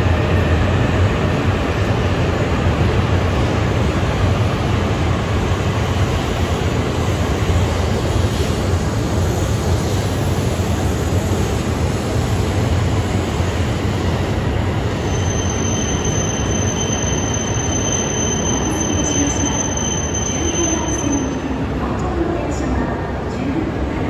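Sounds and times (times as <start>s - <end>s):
train rolling with heavy rumble: 0.0s - 24.0s
thin high squeal: 15.1s - 21.4s.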